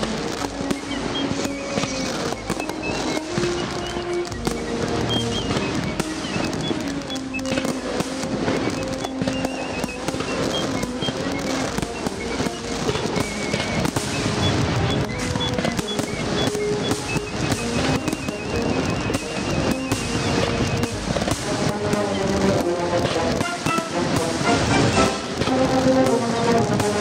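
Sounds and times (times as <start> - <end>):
background music: 0.0 - 27.0
firework bangs and crackles: 0.0 - 27.0.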